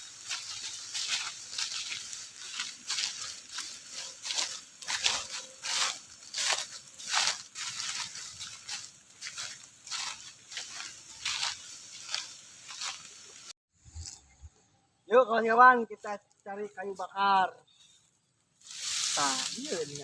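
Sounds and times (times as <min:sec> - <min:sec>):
rustling tearing crackles: 0:00.0 - 0:14.2, 0:18.6 - 0:20.0.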